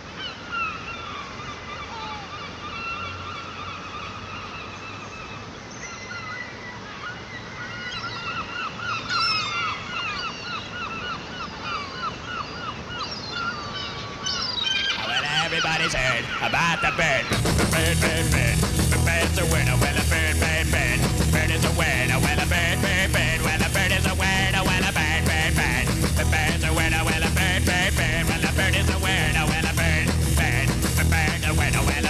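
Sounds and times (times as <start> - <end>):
gulls calling: 0.0 - 32.0
background hiss: 14.2 - 32.0.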